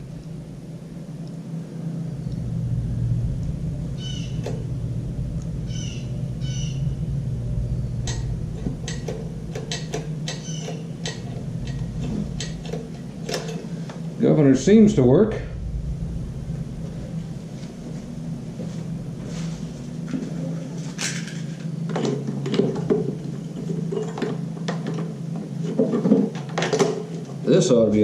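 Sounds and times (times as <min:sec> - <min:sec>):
lawn mower engine running: 0:00.0 - 0:27.2.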